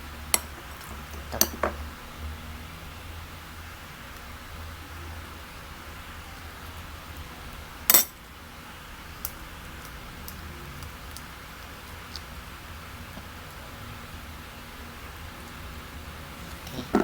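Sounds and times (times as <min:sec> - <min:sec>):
utensil clinking on dish: 0:07.9 - 0:08.2.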